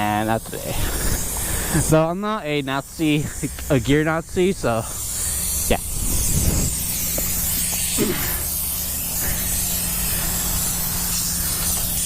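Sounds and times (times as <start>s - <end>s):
motorcycle engine humming: 3.2s - 12.0s
wind rushing over microphone: 5.8s - 6.9s.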